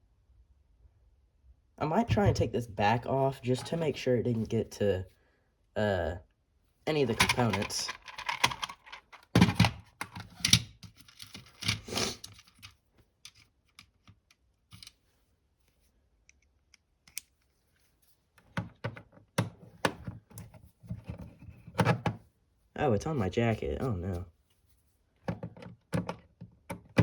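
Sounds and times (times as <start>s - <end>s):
small parts clicking and clattering: 7.0s - 15.0s.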